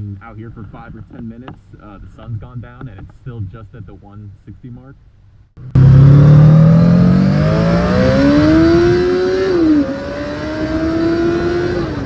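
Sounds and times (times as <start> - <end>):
motorcycle engine accelerating: 5.6 - 12.0.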